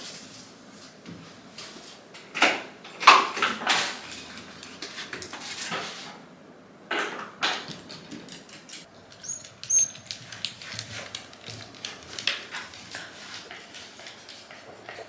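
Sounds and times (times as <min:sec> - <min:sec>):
dog high-pitched squeals: 0:09.2 - 0:10.0.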